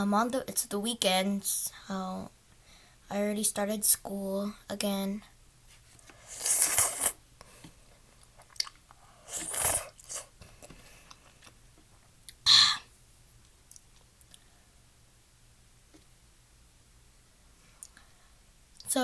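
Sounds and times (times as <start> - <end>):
faint chewing: 6.0 - 12.4
loud mouth noise slurping: 6.2 - 7.2, 9.2 - 10.4.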